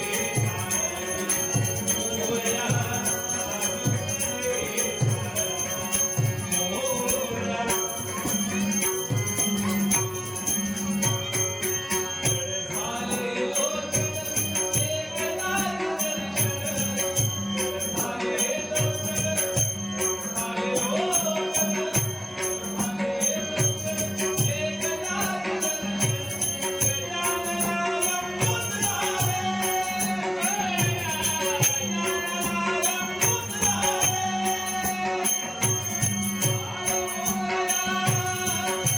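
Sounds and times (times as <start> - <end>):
man singing: 0.0 - 11.2, 12.2 - 38.9
harmonium drone: 0.0 - 38.9
small hand cymbals jingling: 23.5 - 38.9.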